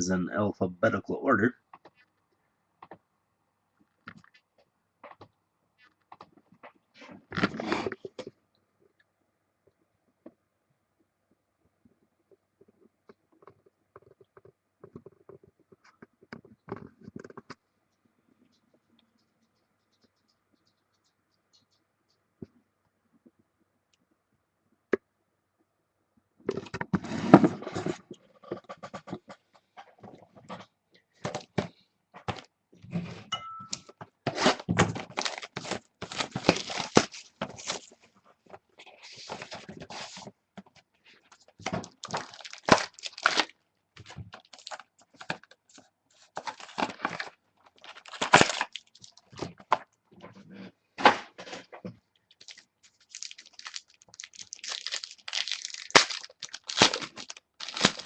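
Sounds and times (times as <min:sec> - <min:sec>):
cardboard and plastic wrapping rustling: 0:34.3 - 0:40.3, 0:41.2 - 0:49.8, 0:51.6 - 0:58.0.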